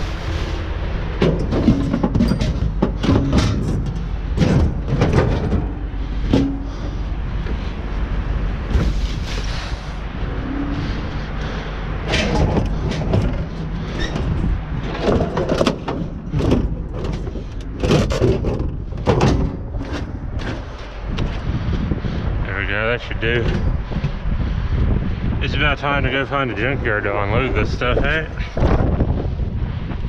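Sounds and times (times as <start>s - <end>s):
scrap metal clanking: 0.0s - 7.8s, 8.7s - 21.0s
wind on microphone: 0.0s - 30.0s.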